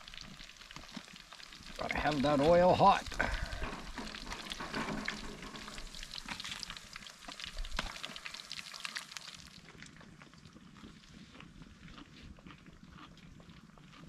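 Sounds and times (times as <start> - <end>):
fish frying in hot oil: 0.0 - 10.7.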